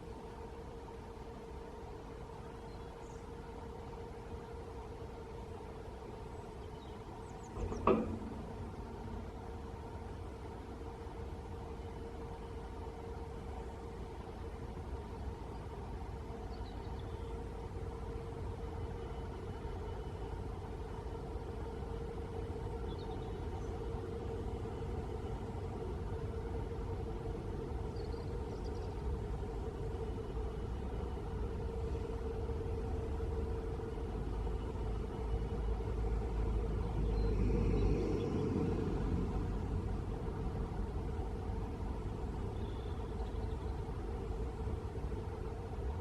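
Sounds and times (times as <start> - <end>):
steady mechanical hum: 0.0 - 46.0
low rumble: 7.5 - 11.4, 34.1 - 42.6.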